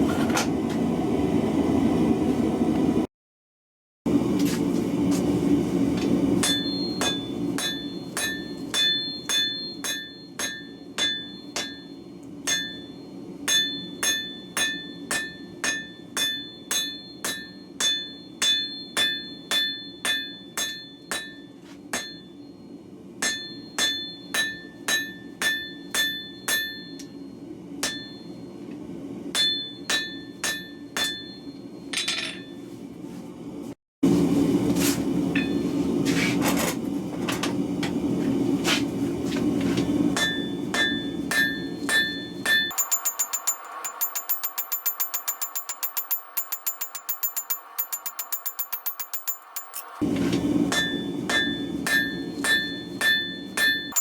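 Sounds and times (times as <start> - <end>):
hammer striking steel on anvil: 6.4 - 22.6, 23.2 - 28.5, 29.3 - 32.6, 35.4 - 35.6, 40.1 - 54.0.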